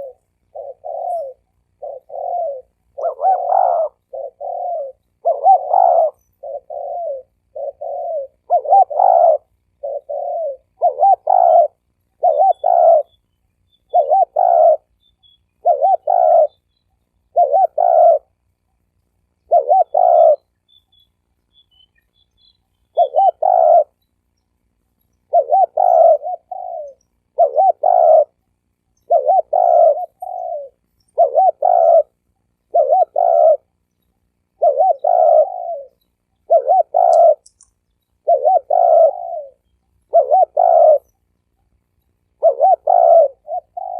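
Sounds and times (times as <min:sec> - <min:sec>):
dove cooing: 0:00.0 - 0:13.2, 0:13.9 - 0:15.0, 0:15.6 - 0:18.4, 0:19.4 - 0:20.5, 0:22.9 - 0:24.0, 0:25.2 - 0:28.4, 0:29.0 - 0:33.8, 0:34.5 - 0:37.6, 0:38.2 - 0:41.2, 0:42.3 - 0:43.9.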